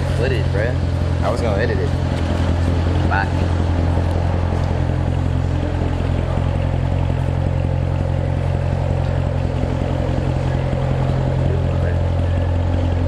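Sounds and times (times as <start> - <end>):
car engine drone: 0.0 - 13.0
road noise: 0.0 - 13.0.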